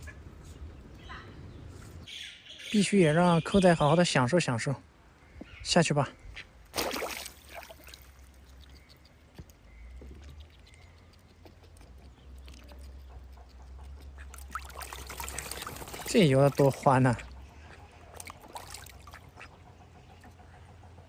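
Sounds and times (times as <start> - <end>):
duck splashing into water: 6.7 - 8.6, 14.2 - 17.4, 18.1 - 19.4
faint splashes and drips: 6.7 - 19.5.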